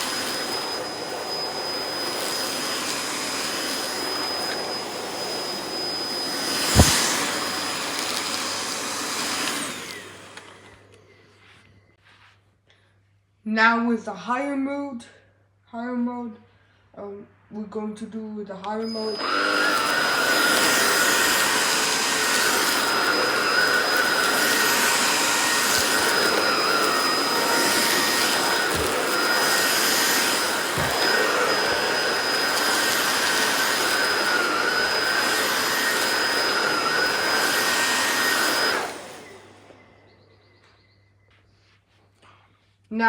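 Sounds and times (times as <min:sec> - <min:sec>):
stick vacuum running with whine: 0:00.0 - 0:11.0, 0:18.8 - 0:40.5
vacuum motor winding down: 0:00.0 - 0:11.0, 0:18.9 - 0:40.2.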